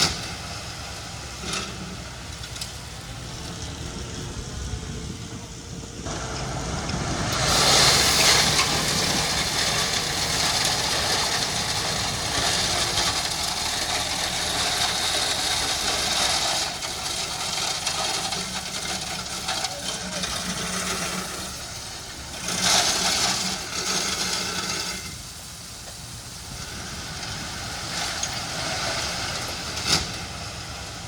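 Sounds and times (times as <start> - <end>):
heavy machine engine running: 0.0 - 31.0
loud rushing noise: 3.2 - 16.8.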